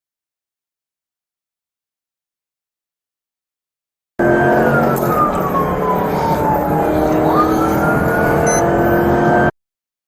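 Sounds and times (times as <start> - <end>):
siren wailing: 4.2 - 9.5
vehicle engine: 4.2 - 9.6.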